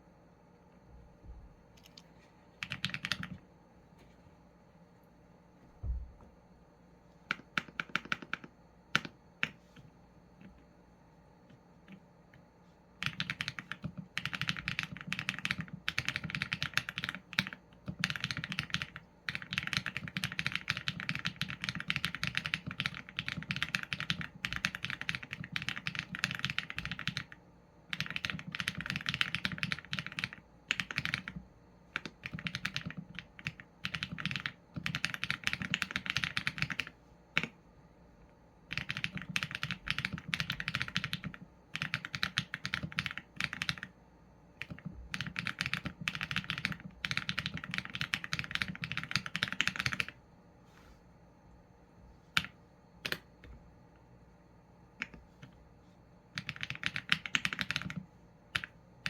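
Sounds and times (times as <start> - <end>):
typing on mechanical keyboard: 2.6 - 3.4, 7.3 - 9.6, 13.0 - 37.6, 38.7 - 44.0, 44.6 - 50.2, 52.4 - 53.5, 56.3 - 58.8.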